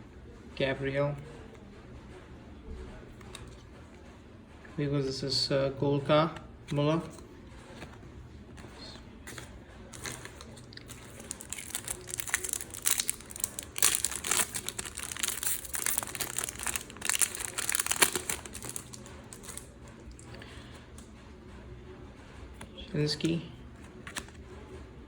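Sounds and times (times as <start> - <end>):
plastic wrapper crinkling: 9.3 - 20.2.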